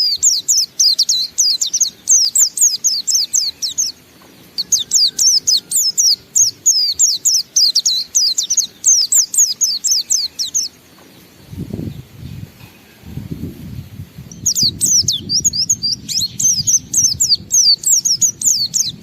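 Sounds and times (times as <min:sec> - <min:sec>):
bird singing rapid falling notes: 0:00.0 - 0:12.6, 0:13.6 - 0:19.0
low rumbling noise: 0:10.6 - 0:19.0.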